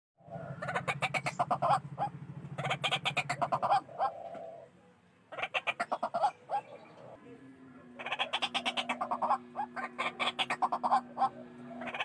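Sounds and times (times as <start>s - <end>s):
low throbbing drone: 0.2s - 4.4s
bird calling harsh repeated notes: 0.4s - 4.6s, 5.3s - 7.2s, 8.0s - 12.0s.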